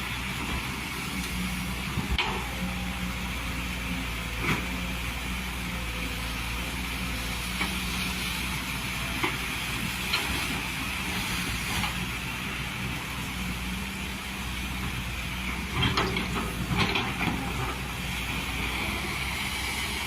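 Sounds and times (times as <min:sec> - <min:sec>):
excavator diesel engine running: 0:00.0 - 0:20.0
constant hiss: 0:00.1 - 0:20.0.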